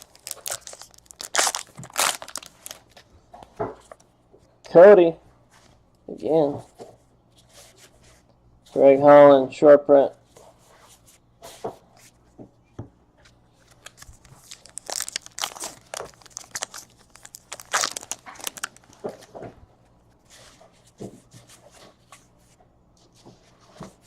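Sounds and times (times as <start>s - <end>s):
card wrappers crinkling and tearing: 0.0s - 3.0s, 13.6s - 19.3s.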